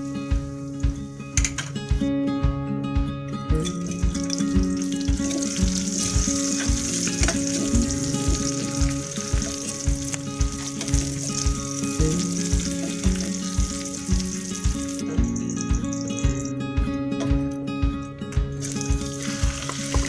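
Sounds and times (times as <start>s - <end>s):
background music with steady beat: 0.0s - 20.0s
onion and garlic sizzling in oil: 3.8s - 16.6s, 18.5s - 20.0s.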